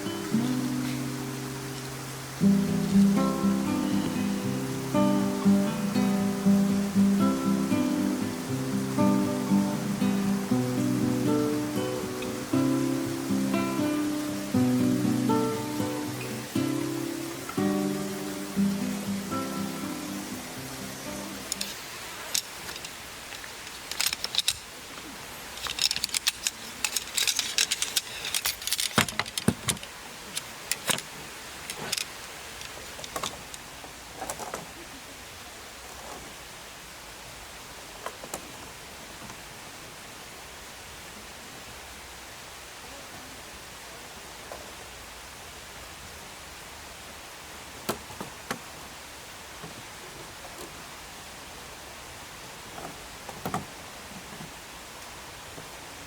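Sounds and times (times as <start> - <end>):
steady hiss: 0.0 - 56.0
small hard objects clinking: 25.5 - 29.4.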